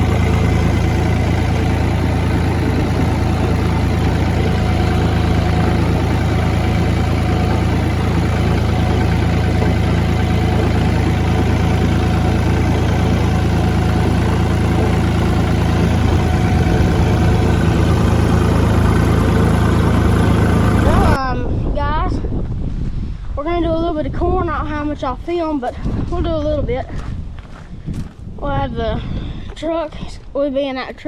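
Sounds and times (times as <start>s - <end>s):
vehicle engine idling: 0.0s - 21.2s.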